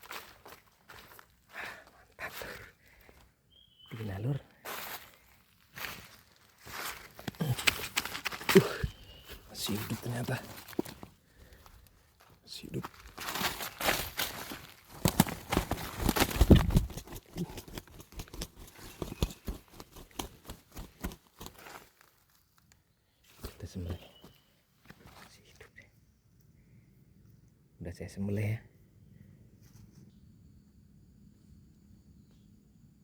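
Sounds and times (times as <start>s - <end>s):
bird flapping and thrashing: 6.9s - 11.1s, 12.9s - 22.2s.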